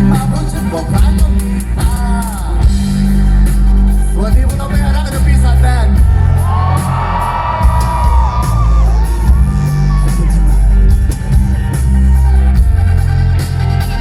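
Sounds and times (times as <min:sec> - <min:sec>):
live rock band playing: 0:00.0 - 0:14.0
crowd shouting: 0:06.1 - 0:12.8.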